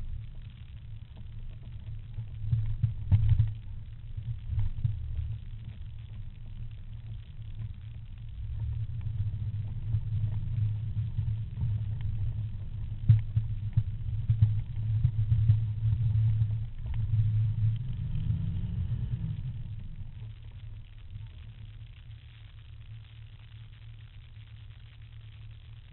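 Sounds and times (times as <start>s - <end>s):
engine rumbling: 6.0s - 21.7s.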